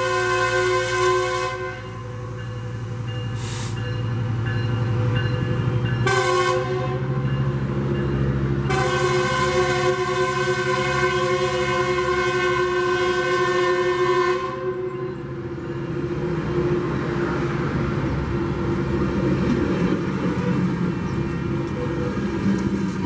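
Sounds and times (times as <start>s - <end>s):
train horn blast: 0.0s - 2.4s, 6.0s - 7.3s, 8.6s - 15.2s
train cars rumbling past: 0.0s - 23.0s.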